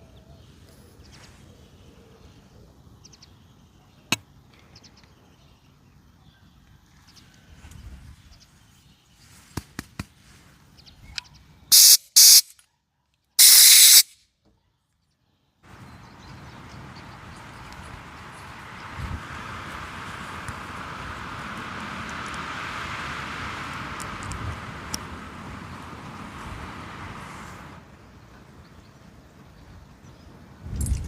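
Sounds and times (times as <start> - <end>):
pressurised spray hissing: 11.7 - 12.4, 13.4 - 14.1, 18.1 - 27.8.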